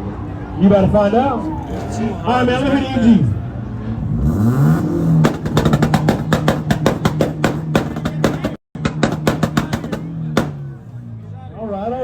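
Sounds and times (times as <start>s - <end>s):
car engine revving: 1.5s - 10.8s
exhaust popping: 4.4s - 10.9s.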